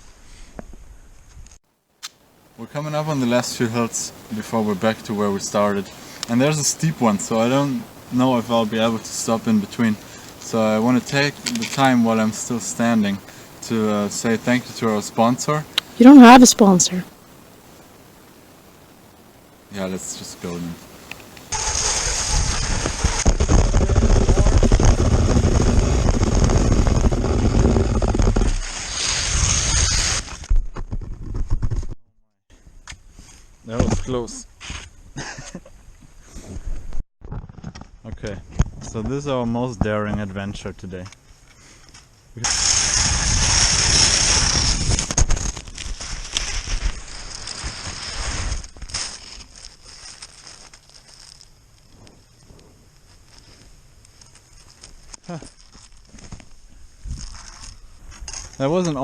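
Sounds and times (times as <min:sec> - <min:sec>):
skis hissing and scraping on snow: 0:02.8 - 0:15.6, 0:21.4 - 0:30.4, 0:42.4 - 0:53.8
wind rumbling on microphone: 0:21.8 - 0:32.0, 0:42.9 - 0:49.4, 0:55.8 - 0:58.5.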